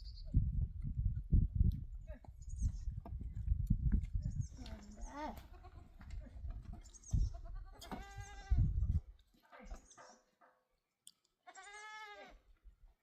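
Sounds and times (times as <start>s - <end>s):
low thumps and rumble: 0.2s - 4.6s
sheep or goats bleating: 4.5s - 6.1s, 7.2s - 8.8s, 11.4s - 12.4s.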